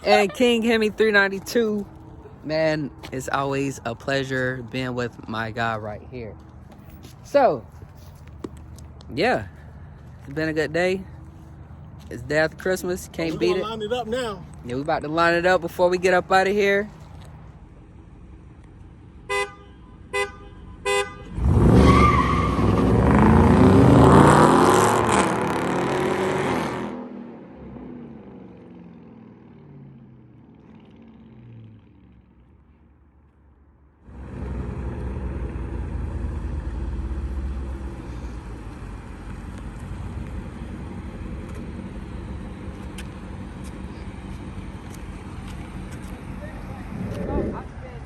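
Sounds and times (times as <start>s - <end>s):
car horn honks: 19.2s - 21.4s
car engines accelerating: 21.2s - 32.5s, 34.1s - 48.0s.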